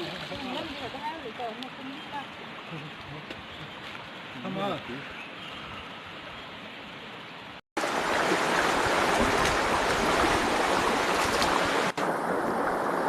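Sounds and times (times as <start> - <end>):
river water rushing: 7.8 - 13.0.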